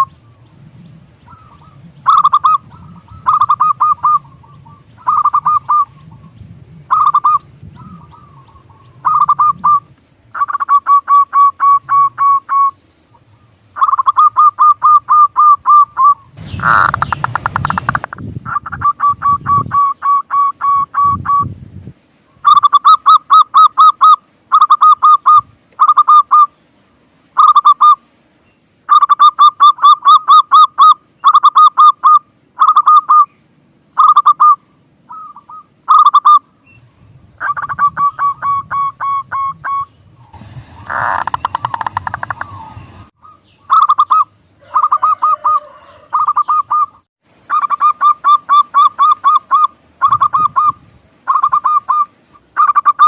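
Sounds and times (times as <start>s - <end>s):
dove cooing: 1.2s - 21.5s, 37.4s - 39.9s, 40.8s - 53.0s.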